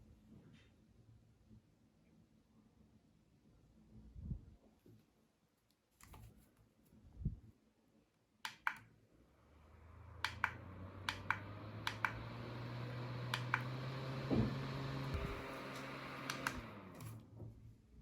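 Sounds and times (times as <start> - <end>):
small fan motor humming: 9.3 - 17.4.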